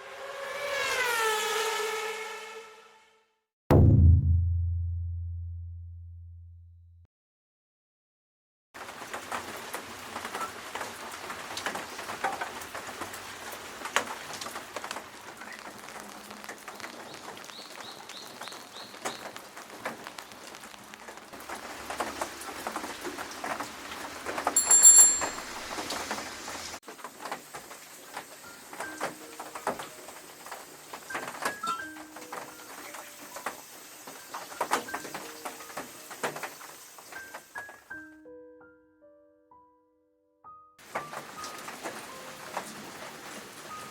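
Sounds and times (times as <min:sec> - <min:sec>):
rain pattering and dripping: 0:08.8 - 0:37.8, 0:40.8 - 0:43.9
high-pitched ringing tone: 0:24.6 - 0:25.7.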